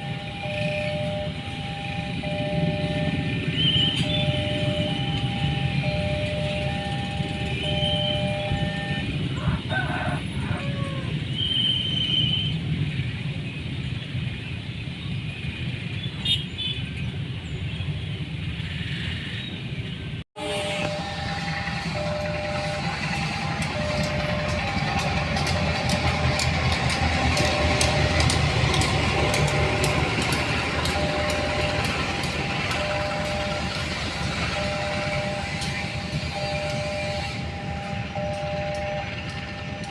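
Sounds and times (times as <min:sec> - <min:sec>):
diesel locomotive engine throbbing: 0:00.0 - 0:15.8, 0:20.4 - 0:39.9
train rumbling: 0:00.0 - 0:39.9.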